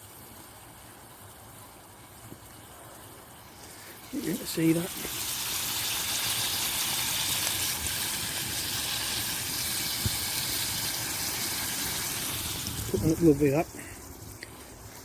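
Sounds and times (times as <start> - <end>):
chicken sizzling in oil: 0.0 - 15.0
oil popping: 3.4 - 15.0.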